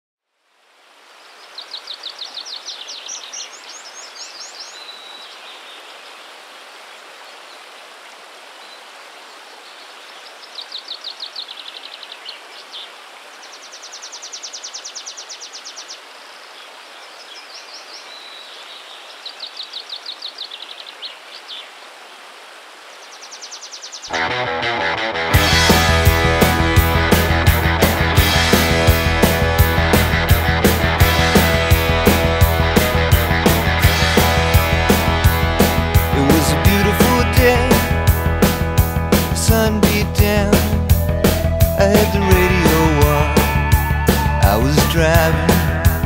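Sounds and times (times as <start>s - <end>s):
rock music: 24.1s - 46.0s.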